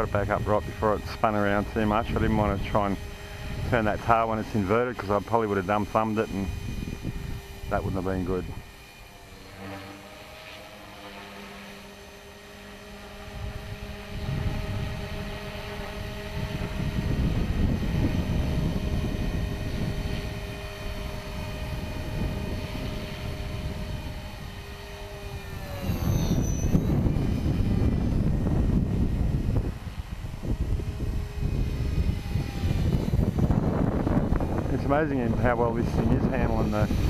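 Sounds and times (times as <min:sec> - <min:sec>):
wind buffeting microphone: 0:00.0 - 0:09.4, 0:12.4 - 0:37.0
rc helicopter rotor whine: 0:00.0 - 0:37.0.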